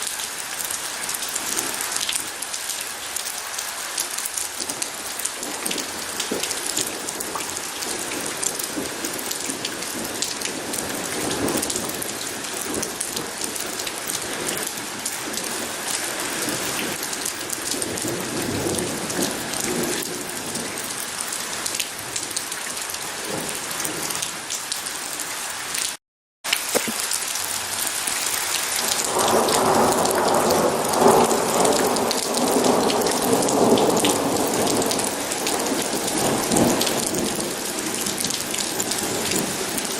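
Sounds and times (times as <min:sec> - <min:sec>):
steady rain: 0:00.0 - 0:39.9
thunder rumbling: 0:05.3 - 0:20.9, 0:28.8 - 0:39.9.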